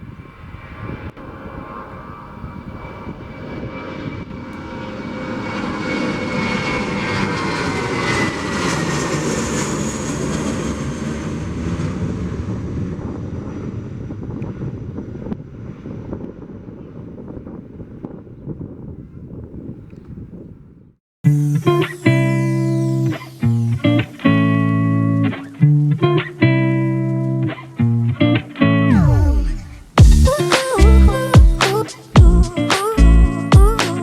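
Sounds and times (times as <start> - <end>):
jet airliner taking off: 0.0 - 18.9, 21.3 - 34.0.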